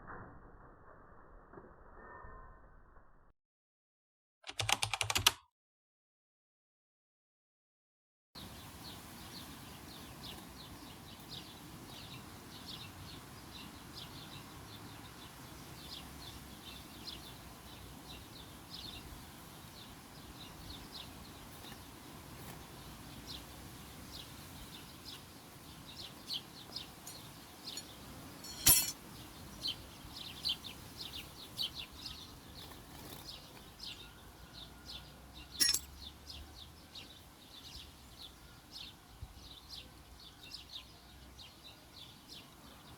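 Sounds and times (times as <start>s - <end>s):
sharp clicks: 4.5s - 5.4s
small songbirds chirping: 8.4s - 42.9s.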